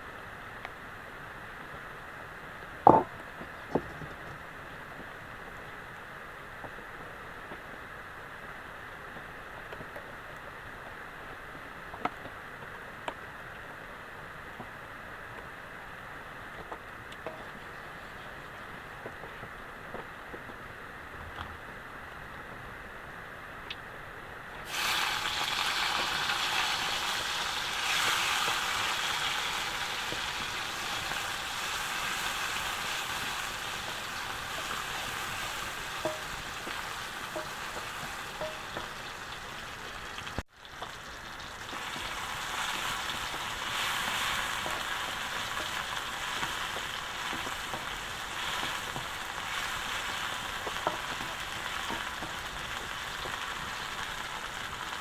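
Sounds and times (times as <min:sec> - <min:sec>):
food sizzling in hot oil: 0:24.6 - 0:55.0.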